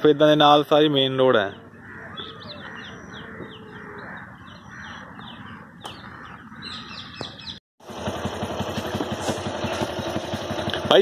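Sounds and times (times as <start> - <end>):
small bird chirping: 1.4 - 7.6
engine idling with even putter: 7.8 - 11.0.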